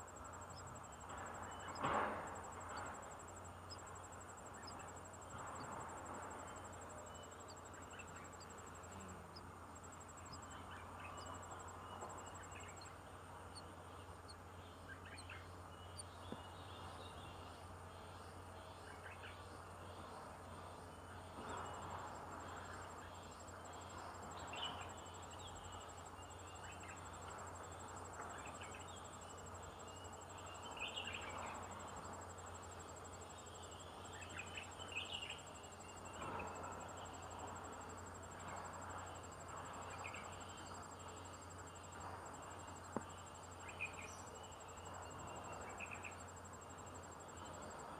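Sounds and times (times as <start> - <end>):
insect trill: 0.0 - 47.9.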